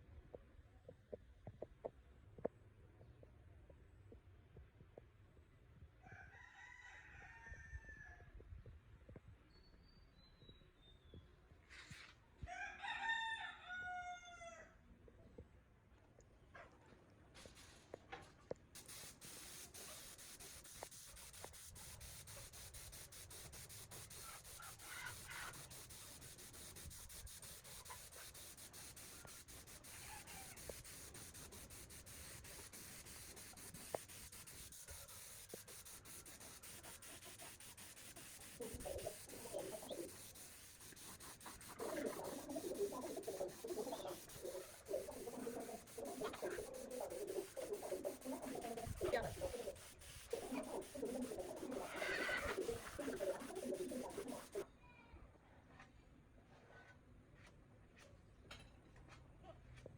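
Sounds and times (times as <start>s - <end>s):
hand sanding scraping: 18.8s - 54.6s
wavering mid-pitched sounds: 18.8s - 54.6s.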